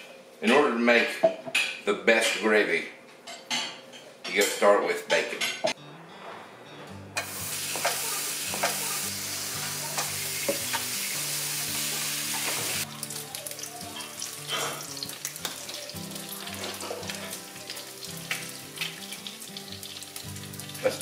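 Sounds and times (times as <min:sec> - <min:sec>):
bacon sizzling in a pan: 0:07.2 - 0:21.0.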